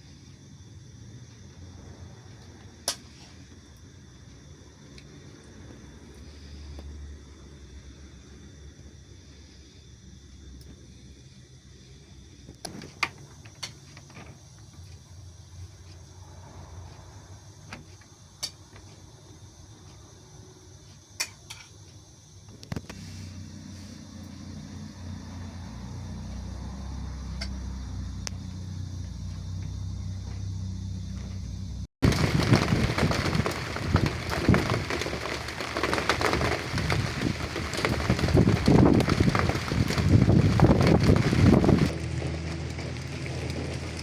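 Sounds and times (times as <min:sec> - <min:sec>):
heavy rain on hard surface: 0:32.0 - 0:44.0.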